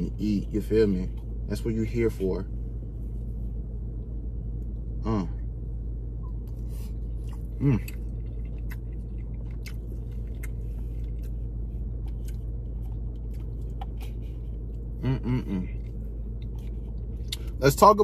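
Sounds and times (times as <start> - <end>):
low hum inside car: 0.0 - 18.0
man chewing with wet mouth clicks: 6.2 - 17.6
man murmuring: 15.0 - 15.8.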